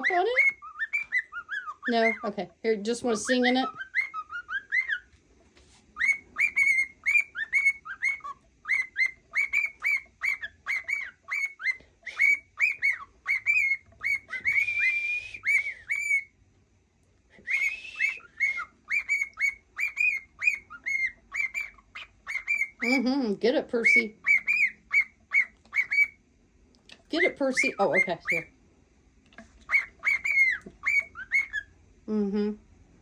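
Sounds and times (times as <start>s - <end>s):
cockatiel whistling: 0.0s - 2.3s, 3.6s - 5.1s, 6.0s - 16.4s, 17.4s - 23.0s, 23.8s - 26.2s, 27.2s - 28.5s, 29.6s - 31.7s.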